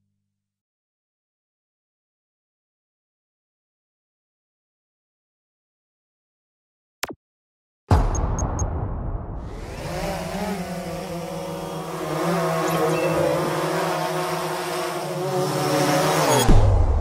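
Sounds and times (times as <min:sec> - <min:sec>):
engine running: 0:09.5 - 0:16.6.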